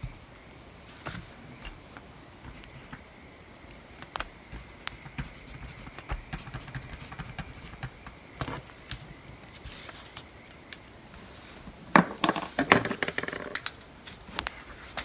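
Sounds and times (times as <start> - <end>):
pencil writing: 4.1 - 8.6
bonfire crackling: 13.6 - 14.6.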